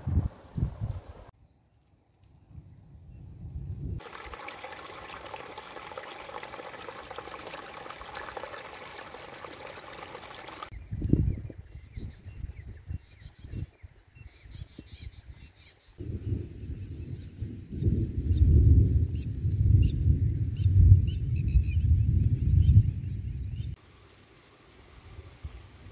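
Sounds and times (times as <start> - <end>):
water rushing: 4.0 - 10.7.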